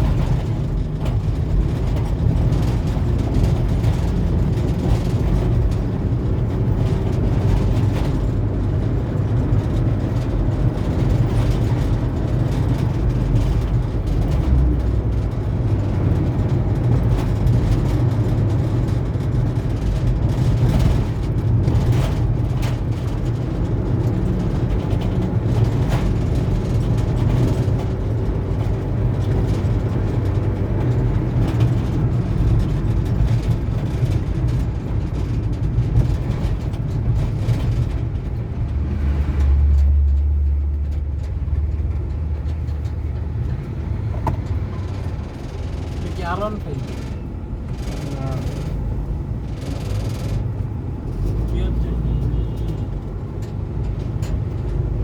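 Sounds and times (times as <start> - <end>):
low engine rumble: 0.0 - 55.0
road noise: 0.0 - 55.0.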